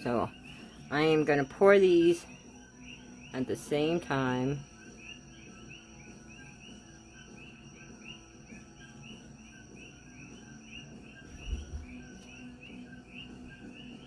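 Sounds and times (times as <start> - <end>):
high rhythmic chirping: 0.0 - 14.0
soft low thump: 11.3 - 12.1.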